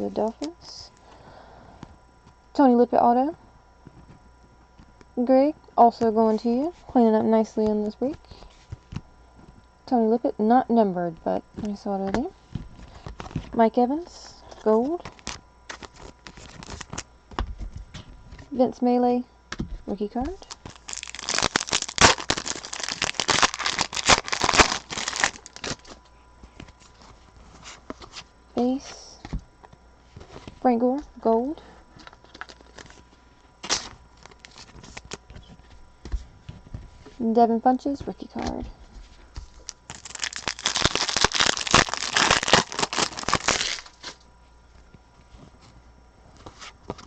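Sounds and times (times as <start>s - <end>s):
foil wrapper tearing and crinkling: 15.0s - 17.1s, 20.4s - 26.0s, 32.0s - 33.0s, 33.6s - 35.2s, 39.5s - 44.2s.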